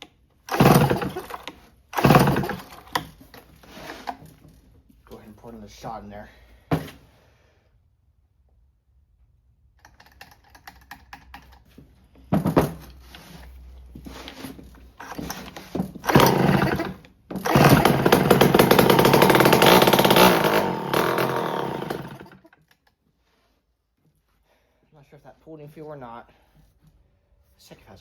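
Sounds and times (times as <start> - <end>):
chainsaw starter pulls: 0.4 - 4.3, 14.3 - 22.5
chainsaw engine running: 0.5 - 2.9, 15.0 - 22.4.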